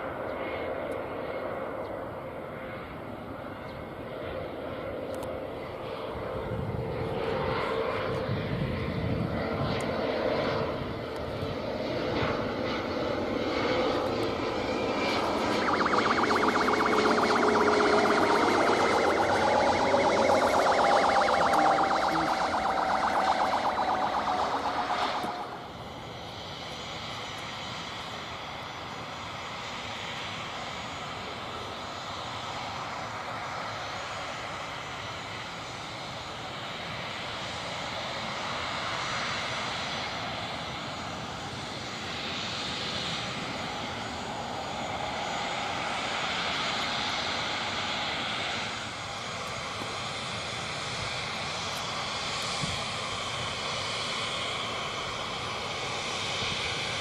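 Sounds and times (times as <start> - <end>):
jet engines roaring: 15.1 - 25.8.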